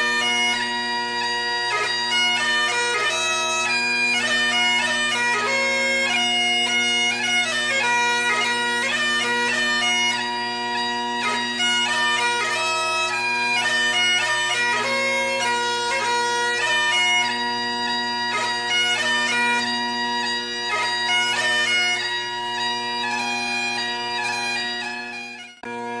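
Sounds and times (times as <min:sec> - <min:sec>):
bagpipe melody with drones: 0:00.0 - 0:26.0.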